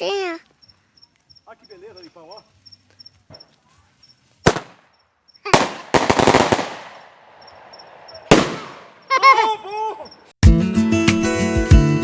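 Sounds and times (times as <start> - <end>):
firecrackers popping and banging: 4.4 - 4.9, 5.5 - 7.2, 8.3 - 9.1.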